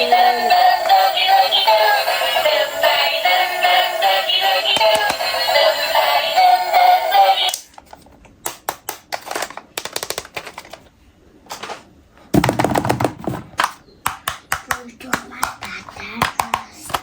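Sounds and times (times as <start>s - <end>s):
background music with synthesized singing: 0.0s - 7.6s
plastic toys and packaging clicking: 4.7s - 5.3s, 7.4s - 17.0s.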